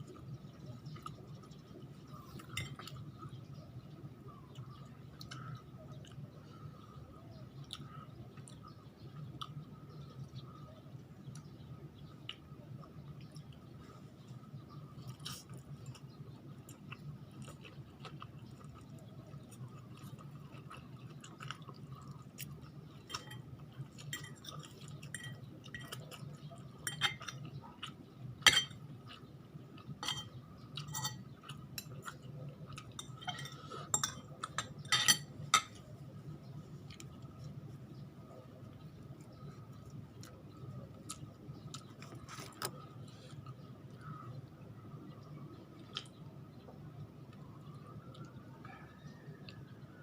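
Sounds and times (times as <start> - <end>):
chewing and mouth sounds: 0.0 - 48.4
steady low hum: 0.0 - 50.0
utensils clinking on a dish: 2.4 - 3.0, 23.1 - 26.0, 26.8 - 27.4, 28.4 - 28.8, 30.0 - 32.0, 32.8 - 35.8.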